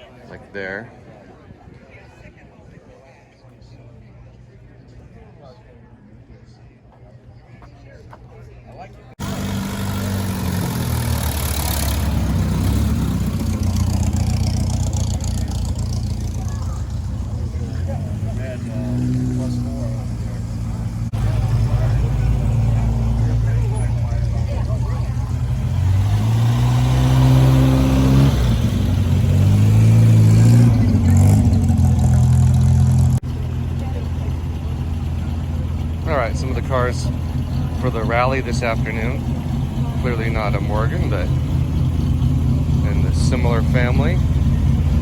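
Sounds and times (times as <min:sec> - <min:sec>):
car engine running: 0:09.2 - 0:45.0.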